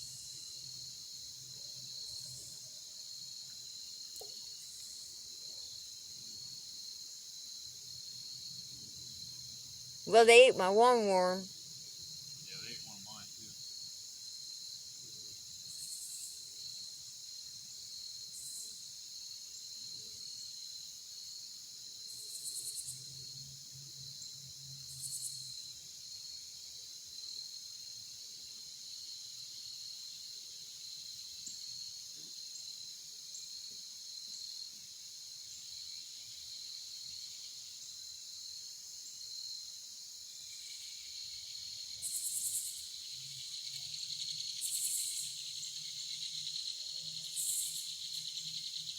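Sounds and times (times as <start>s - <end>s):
insects chorus: 38.5s - 48.9s.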